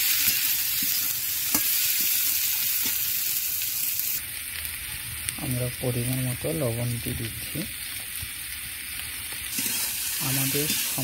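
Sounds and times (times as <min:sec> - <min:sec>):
vegetables sizzling in hot oil: 0:00.0 - 0:11.0
steel spatula scraping pan: 0:09.5 - 0:11.0.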